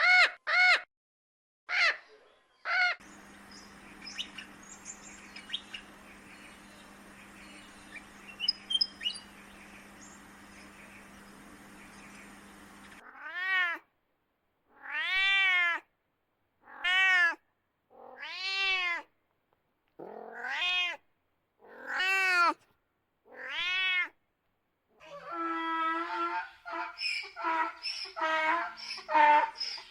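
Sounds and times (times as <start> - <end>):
cat meowing: 13.0 - 13.8, 14.7 - 15.9, 16.6 - 19.1, 20.0 - 21.0, 21.6 - 22.6, 23.3 - 24.2.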